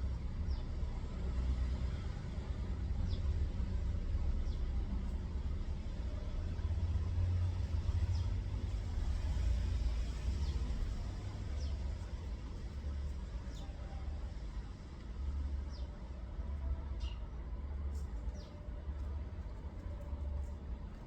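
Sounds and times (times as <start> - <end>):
steady low rumble: 0.0 - 21.0
small birds chirping: 10.4 - 12.3, 13.4 - 13.8, 18.3 - 18.6.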